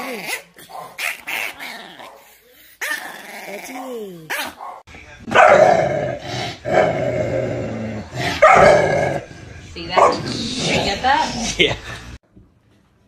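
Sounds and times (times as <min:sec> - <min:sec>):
dog growly whines: 0:00.0 - 0:04.2
puppy growling and snarling: 0:00.0 - 0:04.6, 0:05.3 - 0:09.5, 0:10.1 - 0:11.6.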